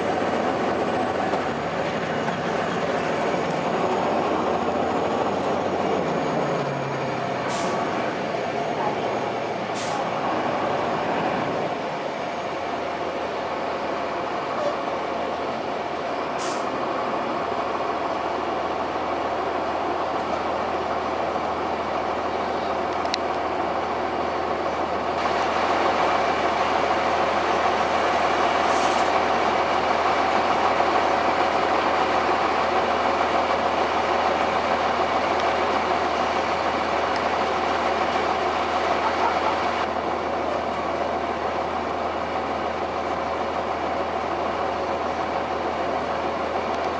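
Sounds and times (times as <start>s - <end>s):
bus diesel engine running: 0.0s - 46.9s
road noise: 0.0s - 46.9s
short high hisses: 27.8s - 29.1s.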